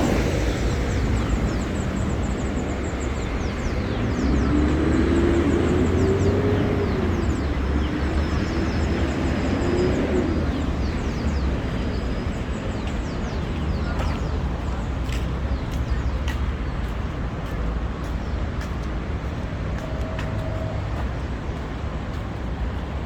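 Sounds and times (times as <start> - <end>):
vehicle passing by: 0.0 - 12.6
rain and traffic hiss: 0.0 - 23.0.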